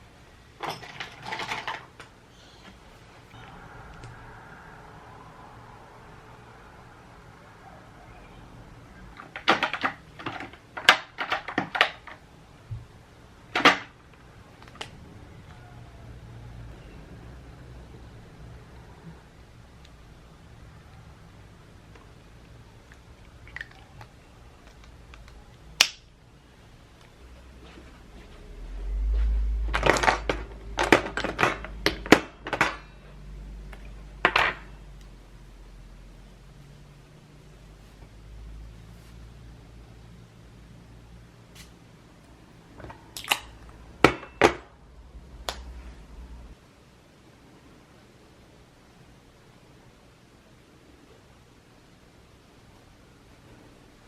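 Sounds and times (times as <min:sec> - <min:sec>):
low rumble: 0:03.3 - 0:09.1, 0:27.2 - 0:30.8.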